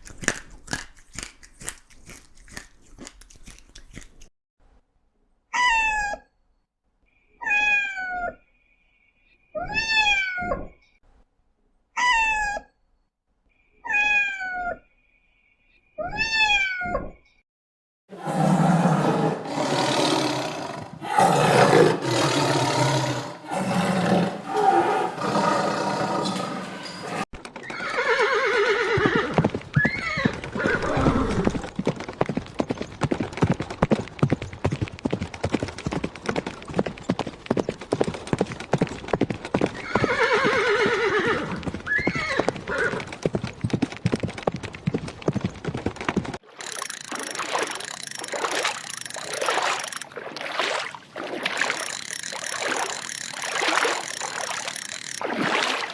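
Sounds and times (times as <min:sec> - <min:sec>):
horse neighing: 0:18.2 - 0:31.6, 0:39.6 - 0:43.2
clatter of hooves: 0:26.2 - 0:50.1.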